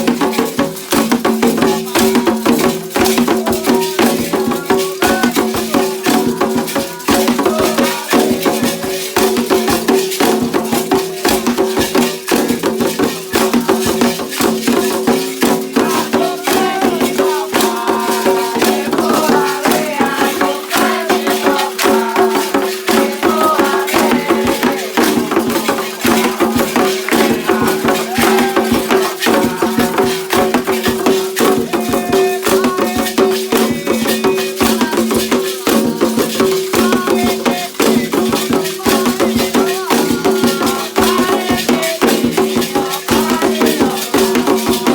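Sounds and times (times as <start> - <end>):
percussion: 0.0 - 44.9
rattles shaken in fast rhythm: 0.0 - 44.9.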